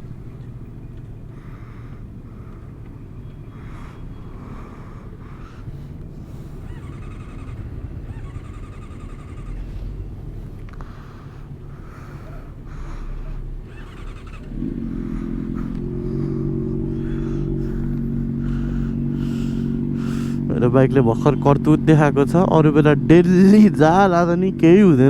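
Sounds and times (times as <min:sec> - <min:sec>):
motorcycle engine idling: 0:00.0 - 0:25.0
motorcycle engine rumble: 0:00.0 - 0:25.0.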